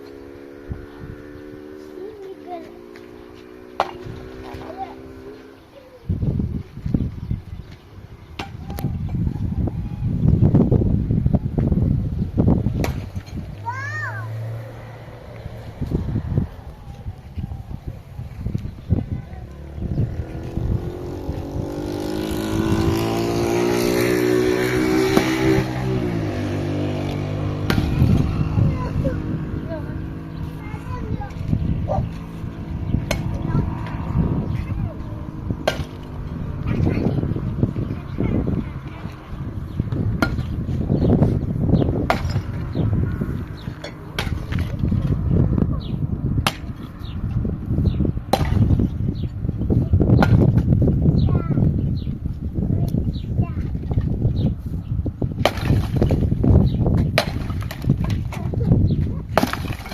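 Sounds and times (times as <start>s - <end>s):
engine revving: 0.0s - 5.8s, 12.3s - 49.3s
steady low rumble: 6.1s - 23.6s, 24.5s - 59.4s.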